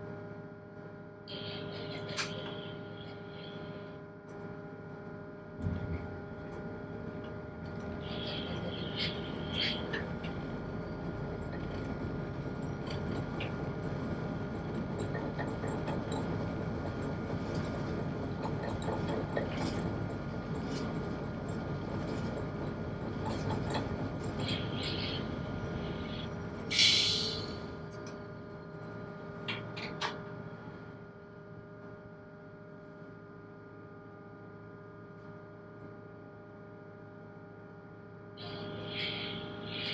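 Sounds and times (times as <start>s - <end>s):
boat engine droning: 7.9s - 11.8s
sudden loud hiss: 26.8s - 27.5s.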